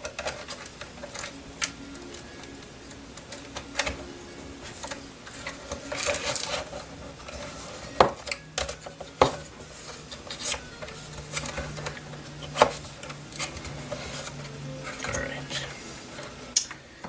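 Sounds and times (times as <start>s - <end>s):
plastic parts clicking: 0.0s - 9.5s.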